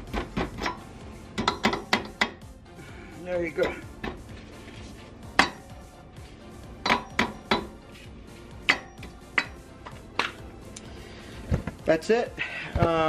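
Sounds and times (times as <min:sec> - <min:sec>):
steel tool tapping metal: 0:01.4 - 0:02.5, 0:05.3 - 0:05.8, 0:06.8 - 0:07.8, 0:08.6 - 0:10.4.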